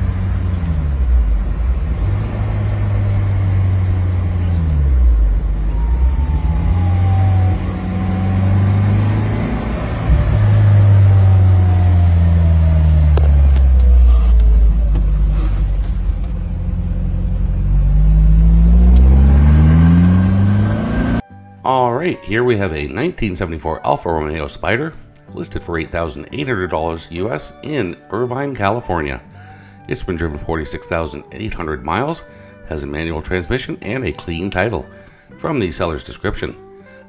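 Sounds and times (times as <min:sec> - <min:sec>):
car engine revving: 0:00.0 - 0:21.2.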